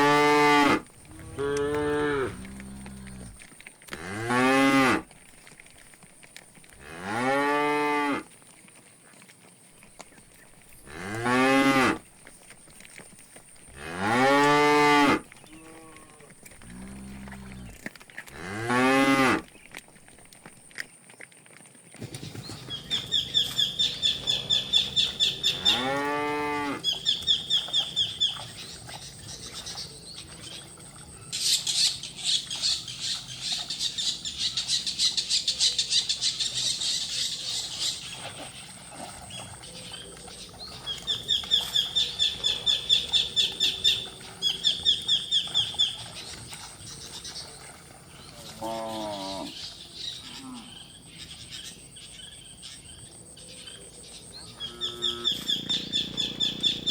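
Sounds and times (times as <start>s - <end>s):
cattle mooing: 0.0s - 5.1s, 6.8s - 8.3s, 10.8s - 12.0s, 13.7s - 19.5s, 23.2s - 27.0s, 48.4s - 49.6s, 54.6s - 56.9s.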